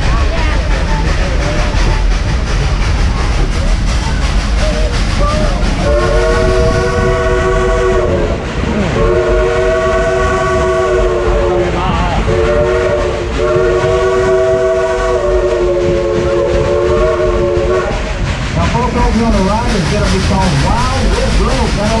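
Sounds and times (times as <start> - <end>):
low rumble of moving train: 0.0 - 22.0
steam locomotive chime whistle: 12.3 - 17.9.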